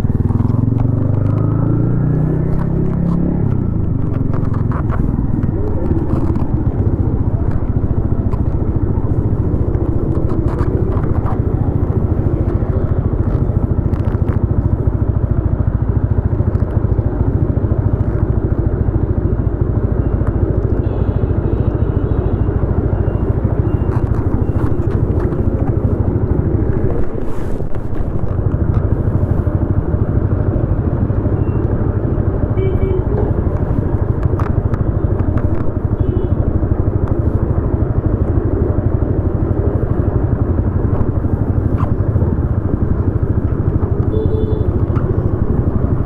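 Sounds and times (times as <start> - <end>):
motorcycle engine exhaust note: 41.2 - 46.0.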